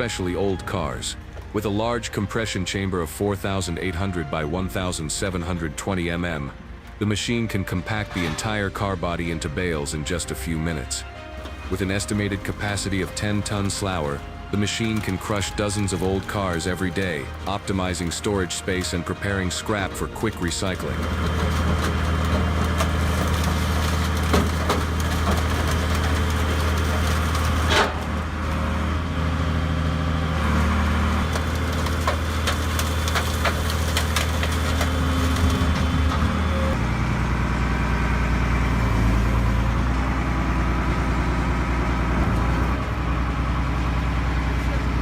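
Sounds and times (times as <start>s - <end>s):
heavy machine engine running: 0.0s - 45.0s
material cracking and crunching: 11.8s - 28.3s, 30.4s - 36.8s.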